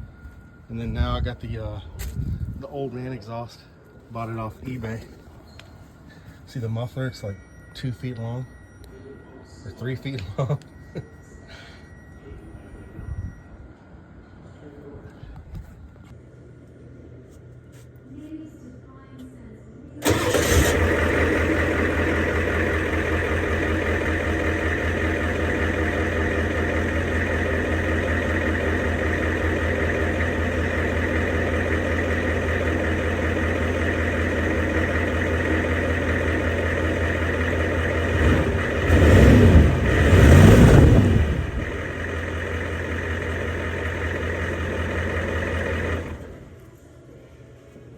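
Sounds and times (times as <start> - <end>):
diesel pickup engine idling and revving: 20.0 - 46.6.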